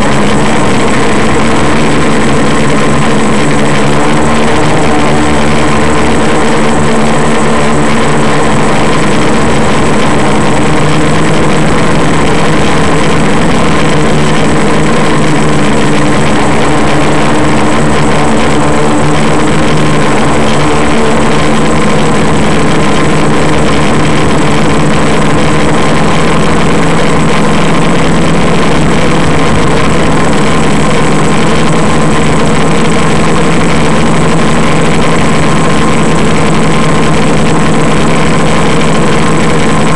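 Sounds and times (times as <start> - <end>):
high whine: 0.0 - 39.9
quadcopter motors droning: 0.0 - 39.9.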